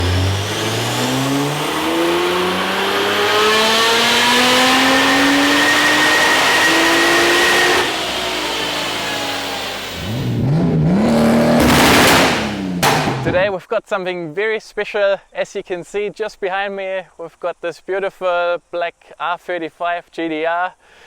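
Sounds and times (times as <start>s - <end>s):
car engine accelerating hard: 0.0s - 13.5s.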